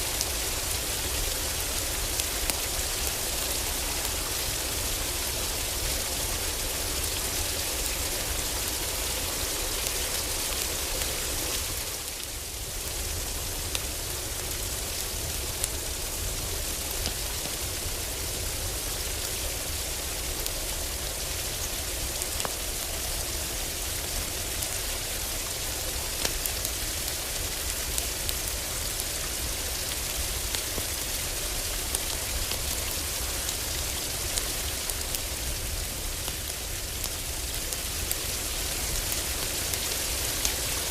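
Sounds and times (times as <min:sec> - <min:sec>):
heavy rain on a roof: 0:00.0 - 0:40.9
wood fire crackling: 0:00.1 - 0:40.9.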